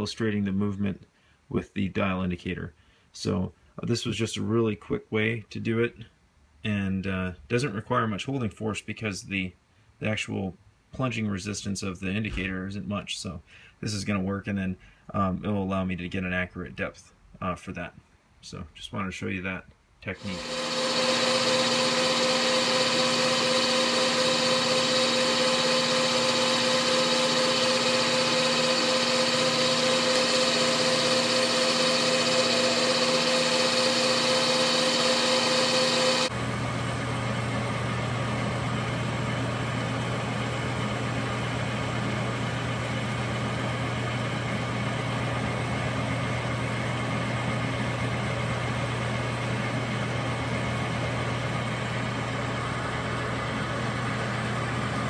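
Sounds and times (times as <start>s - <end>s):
metal lathe whining: 20.2s - 36.3s.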